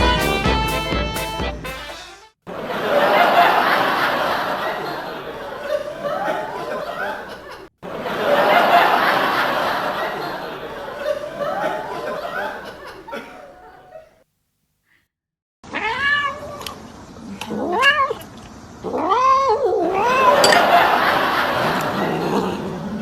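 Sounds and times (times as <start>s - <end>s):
cat yowling meows: 15.7s - 16.6s.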